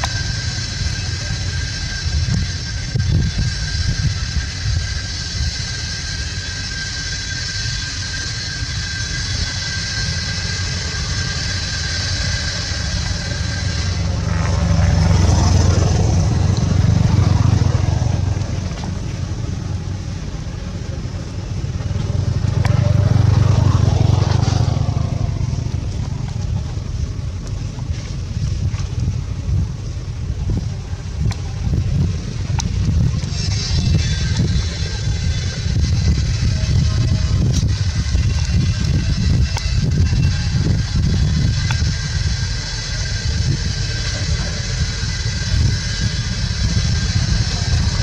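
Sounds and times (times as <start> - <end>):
high-pitched whine: 0.0 - 48.0
motor vehicles passing by: 9.9 - 48.0.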